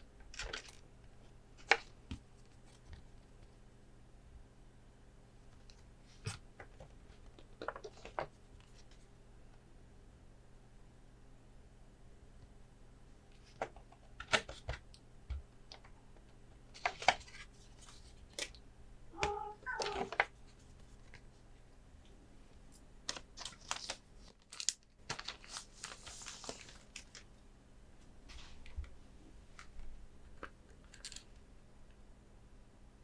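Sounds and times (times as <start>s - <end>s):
short pitched cry: 19.2s - 20.1s
plastic packaging crinkling: 23.1s - 27.3s.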